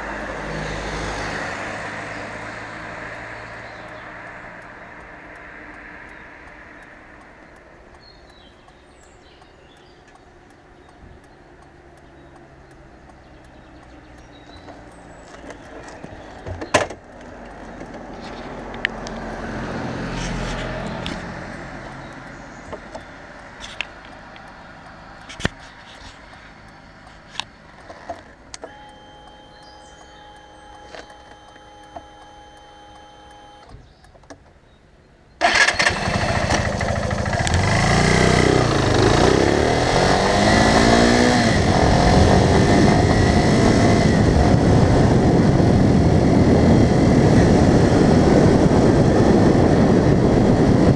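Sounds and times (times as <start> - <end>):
car engine and road noise: 0.0 - 50.9
sharp clicks and knocks: 22.1 - 28.8, 33.6 - 34.6.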